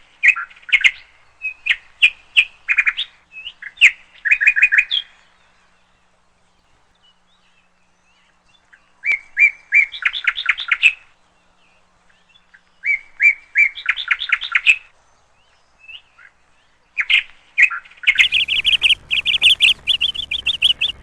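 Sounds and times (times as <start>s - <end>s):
bird chirping: 18.0s - 21.0s
low steady hum: 18.2s - 21.0s.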